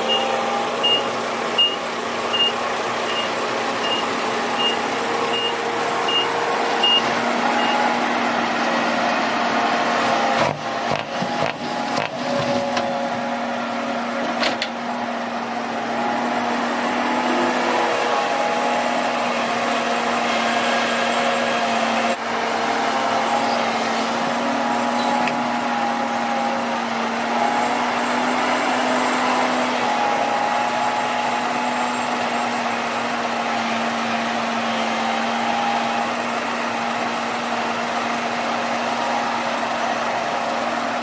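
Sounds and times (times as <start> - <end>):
reversing alarm beeping: 0.0 - 8.0
heavy machinery engine running: 0.0 - 41.0.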